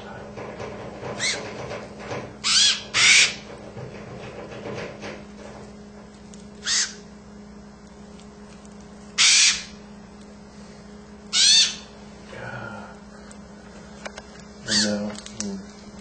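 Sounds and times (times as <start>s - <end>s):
steady low hum: 0.0s - 16.0s
macaw squawks: 1.2s - 1.4s, 2.4s - 3.5s, 6.6s - 7.1s, 9.2s - 9.8s, 11.3s - 12.0s, 14.6s - 15.0s.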